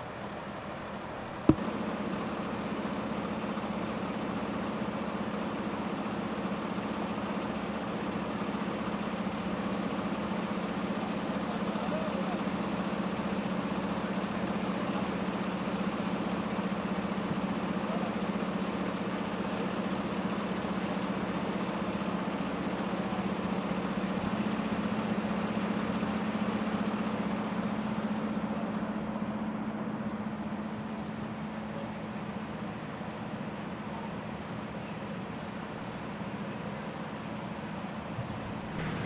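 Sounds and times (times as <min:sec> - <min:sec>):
large vehicle engine idling: 0:00.0 - 0:39.0.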